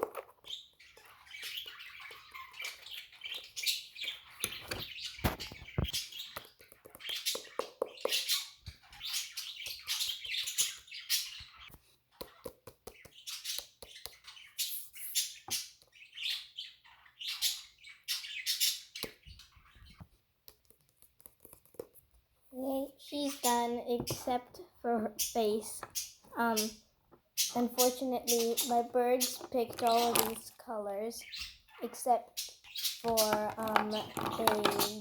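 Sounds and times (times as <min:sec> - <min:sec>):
budgerigars chirping: 0:00.4 - 0:11.7, 0:13.0 - 0:20.0, 0:25.2 - 0:26.8, 0:27.4 - 0:30.3, 0:31.2 - 0:34.2.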